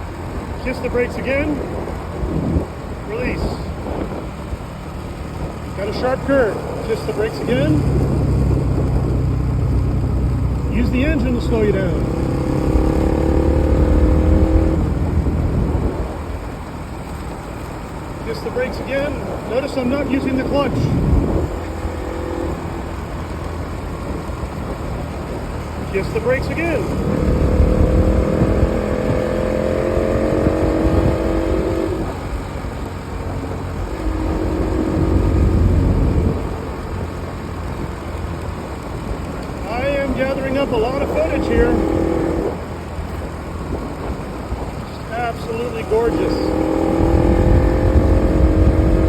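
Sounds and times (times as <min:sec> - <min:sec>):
engine whine: 0:00.0 - 0:49.0
motorcycle engine braking: 0:00.0 - 0:49.0
steady low rumble: 0:00.0 - 0:49.0.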